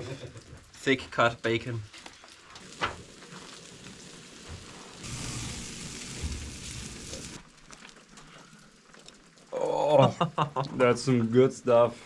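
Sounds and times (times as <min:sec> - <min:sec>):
bacon sizzling in a pan: 0:02.6 - 0:07.4.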